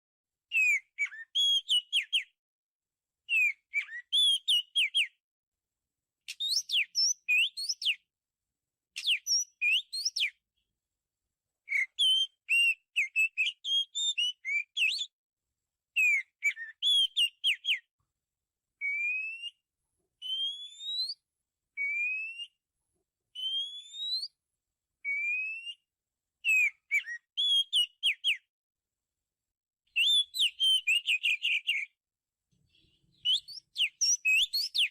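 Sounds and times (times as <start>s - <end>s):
bird singing whistled phrases: 0.5s - 2.4s, 3.3s - 5.2s, 6.3s - 8.0s, 9.0s - 10.4s, 11.7s - 15.2s, 16.0s - 17.9s, 18.8s - 19.6s, 20.2s - 21.2s, 21.8s - 22.6s, 23.4s - 24.4s, 25.0s - 28.5s, 29.9s - 32.0s, 33.1s - 34.9s
upward-sliding whistles: 18.8s - 19.6s, 20.2s - 21.2s, 21.8s - 22.6s, 23.4s - 24.4s, 25.1s - 25.8s.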